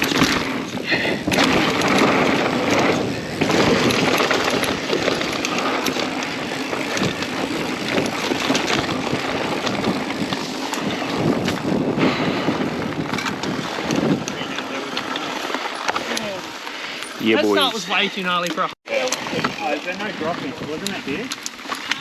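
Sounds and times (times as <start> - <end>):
wind buffeting microphone: 0.0 - 15.3
tyres rolling over dirt: 0.0 - 18.1
bike clicks and rattles: 0.0 - 22.0.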